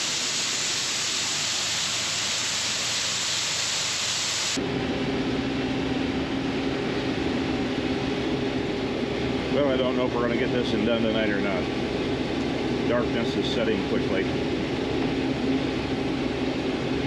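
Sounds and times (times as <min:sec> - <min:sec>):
steady rushing hiss: 0:00.0 - 0:04.6
farm machine engine drone: 0:04.5 - 0:17.0.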